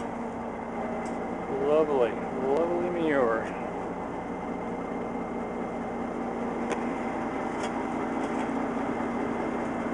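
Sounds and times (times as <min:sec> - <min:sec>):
diesel truck engine idling: 0:00.0 - 0:09.9.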